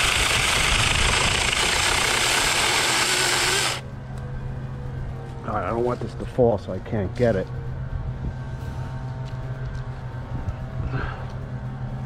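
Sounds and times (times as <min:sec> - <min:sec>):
chainsaw cutting tree limb: 0:00.0 - 0:03.8.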